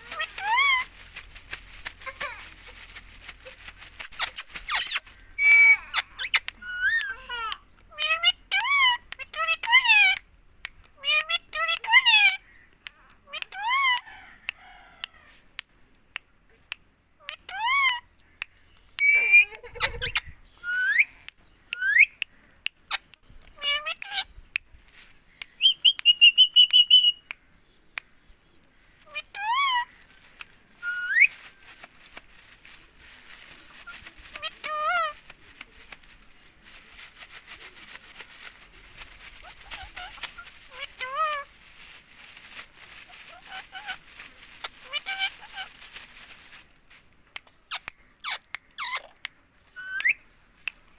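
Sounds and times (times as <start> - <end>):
parakeet squeaky calls: 0.0 - 1.1, 4.0 - 10.2, 11.0 - 12.5, 13.3 - 14.2, 17.2 - 18.1, 19.0 - 22.2, 22.9 - 24.3, 25.6 - 27.2, 29.0 - 31.4, 33.7 - 35.3, 39.2 - 41.6, 43.1 - 45.8, 47.7 - 49.1, 49.8 - 50.2
parrot chirps: 0.0 - 1.1, 3.4 - 10.3, 10.9 - 14.8, 17.2 - 18.1, 19.0 - 24.6, 25.3 - 27.3, 29.0 - 31.4, 33.7 - 35.3, 39.0 - 41.6, 43.2 - 46.5, 47.4 - 50.8
parrot whistling and calling: 4.1 - 7.2, 19.0 - 22.2, 30.8 - 31.4, 49.8 - 50.2.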